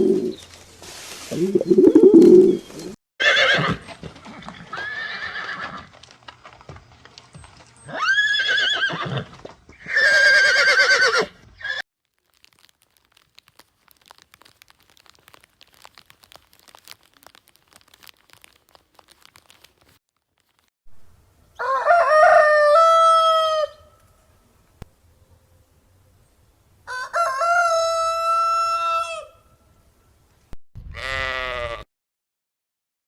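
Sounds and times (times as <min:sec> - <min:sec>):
horse whinnying: 0:03.2 - 0:03.8, 0:04.4 - 0:05.9, 0:07.9 - 0:11.8
rooster crowing: 0:21.6 - 0:23.9, 0:26.9 - 0:29.5.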